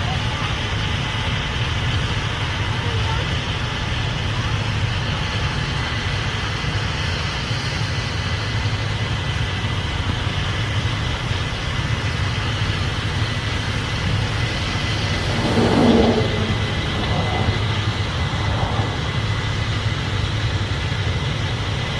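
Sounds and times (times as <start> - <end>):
combine harvester engine drone: 0.0 - 21.9.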